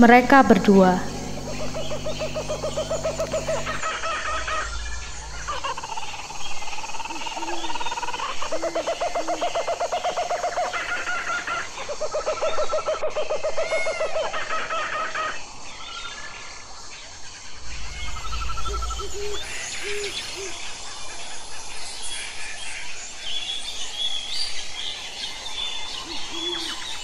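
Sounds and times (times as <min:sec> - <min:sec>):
repeated hooting notes: 0:00.0 - 0:06.8
bird trilling calls: 0:00.0 - 0:11.7.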